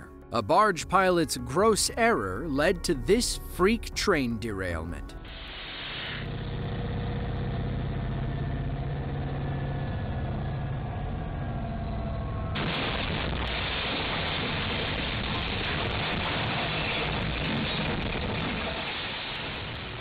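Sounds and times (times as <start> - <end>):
loud rushing hiss: 5.3 - 6.3
locomotive engine hum: 6.2 - 13.8.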